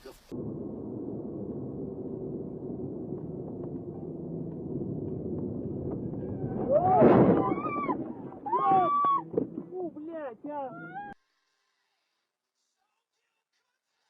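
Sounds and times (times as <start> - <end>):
car road and engine noise: 0.3 - 10.8.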